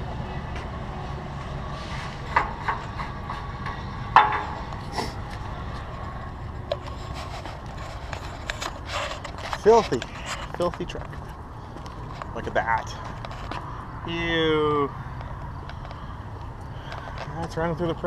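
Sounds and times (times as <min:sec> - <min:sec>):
semi-truck idling: 0:00.0 - 0:18.0
sharp metallic knocks and clanks: 0:02.2 - 0:06.0.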